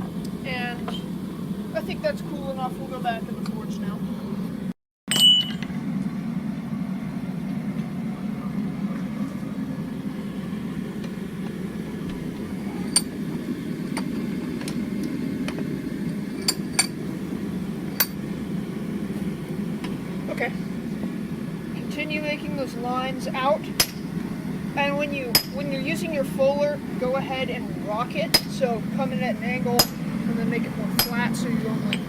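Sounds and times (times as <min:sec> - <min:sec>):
metallic clinks: 0:05.1 - 0:05.7.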